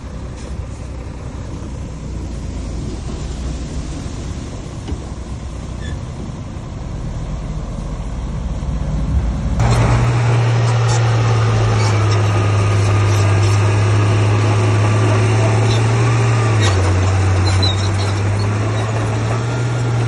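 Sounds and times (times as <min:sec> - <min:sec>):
diesel machinery engine rumble: 0:00.0 - 0:20.0
machinery clattering: 0:09.1 - 0:20.0.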